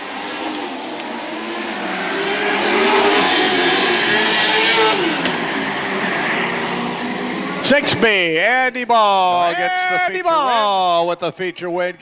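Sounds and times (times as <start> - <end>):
race car engines passing: 0.0 - 9.6.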